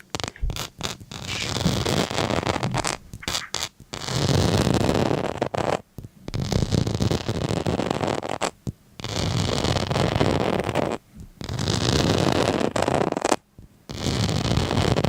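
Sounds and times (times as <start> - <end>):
rough scraping strokes: 0.0 - 3.7.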